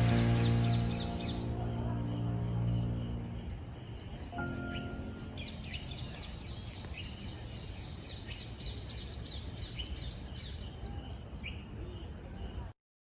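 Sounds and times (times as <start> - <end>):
low background rumble: 0.0 - 6.7
birds chirping: 0.0 - 12.7.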